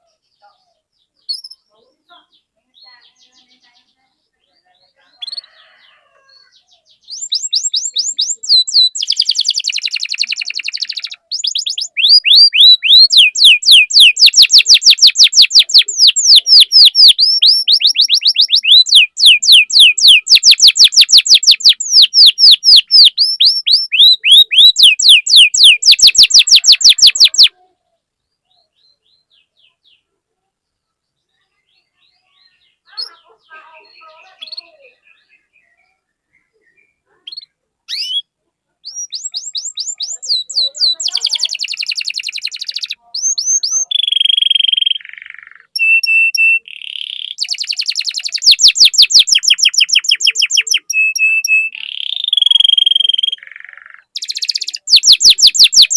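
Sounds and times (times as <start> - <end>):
canary singing chirps: 0.0 - 55.9.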